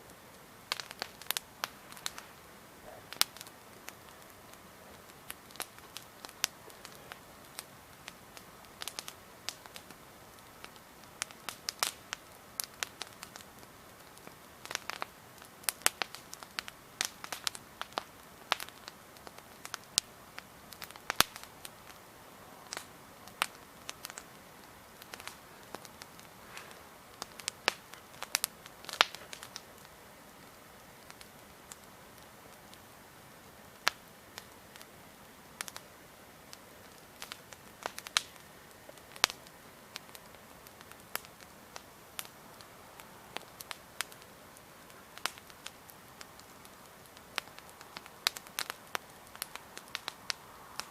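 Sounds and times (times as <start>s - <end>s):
campfire crackling: 0.0s - 50.9s
faint hiss of burning: 0.0s - 50.9s
logs popping and snapping: 0.7s - 2.3s, 22.7s - 29.9s, 36.9s - 42.3s.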